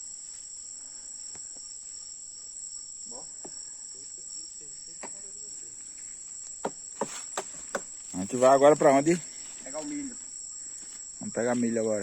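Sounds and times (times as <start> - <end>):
insect trilling: 0.0 - 12.0.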